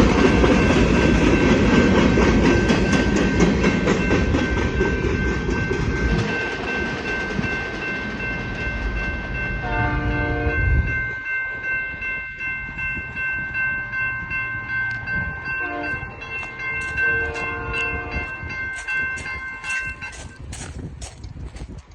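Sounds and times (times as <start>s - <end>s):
steady high ringing tones: 0.0s - 20.5s
freight train rumbling past: 0.0s - 21.1s
locomotive horn: 9.6s - 10.9s, 15.6s - 16.2s, 17.0s - 18.4s.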